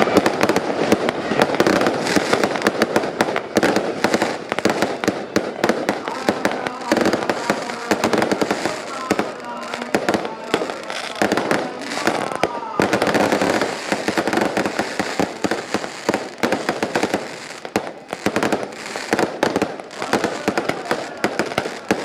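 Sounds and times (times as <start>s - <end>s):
firecrackers going off: 0.0s - 22.0s
voices: 0.0s - 22.0s.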